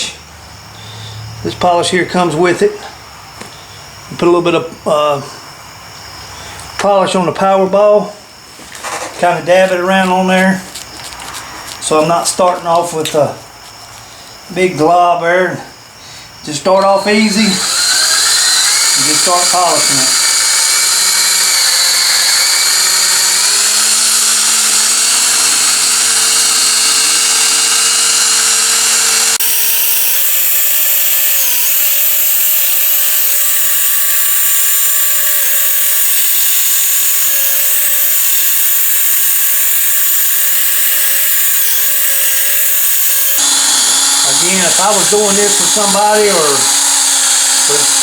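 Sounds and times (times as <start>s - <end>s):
cordless drill whining: 16.7s - 48.0s.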